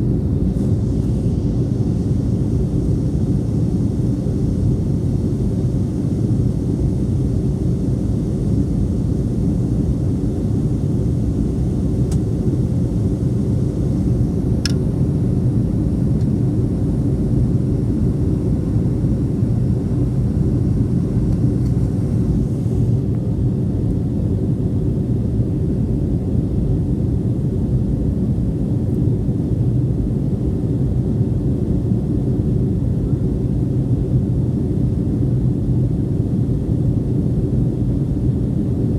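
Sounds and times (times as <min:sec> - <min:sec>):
jet engine rumble in cabin: 0:00.0 - 0:38.9
airflow hiss: 0:00.4 - 0:11.0.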